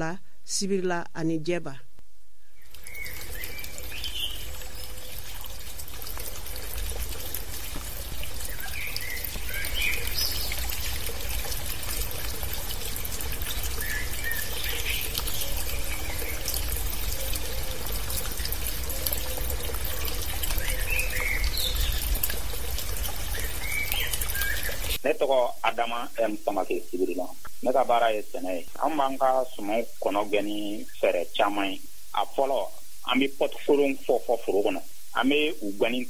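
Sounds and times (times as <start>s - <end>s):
birds chirping: 2.4s - 36.0s.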